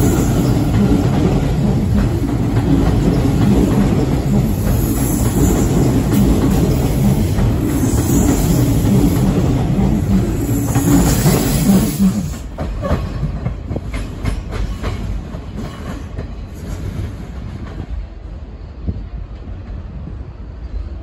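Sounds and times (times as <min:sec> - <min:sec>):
train wheels clattering over joints: 0:00.0 - 0:18.0
electric train passing: 0:00.0 - 0:21.0.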